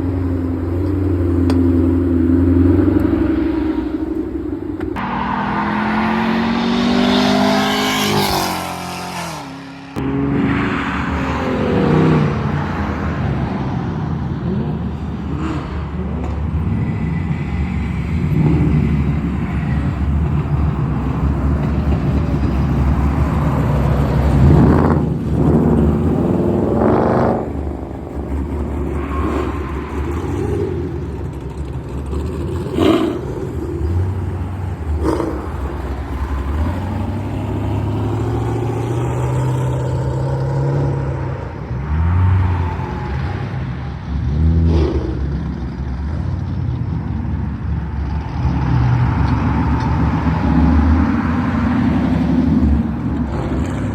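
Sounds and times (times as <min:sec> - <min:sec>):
car engines idling: 0:00.0 - 0:05.6, 0:14.1 - 0:38.9
engines revving: 0:00.0 - 0:53.9
car pulling away: 0:15.6 - 0:53.9.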